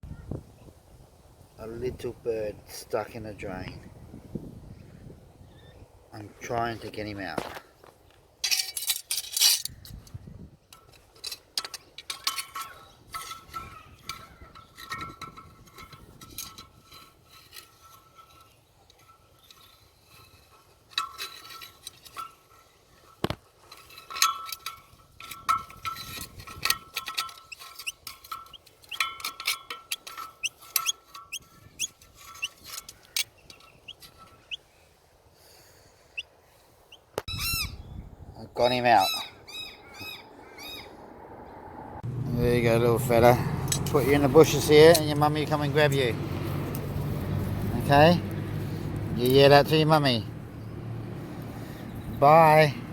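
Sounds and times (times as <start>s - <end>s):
scraping and rattling at a drain: 8.4s - 34.6s, 43.0s - 50.5s
small bird chirping: 29.9s - 34.8s.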